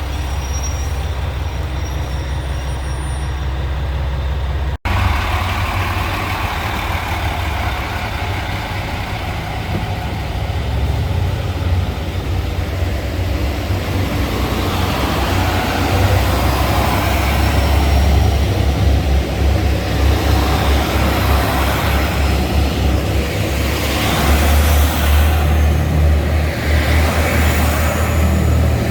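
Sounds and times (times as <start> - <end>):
diesel railcar rumble: 0.0 - 28.9.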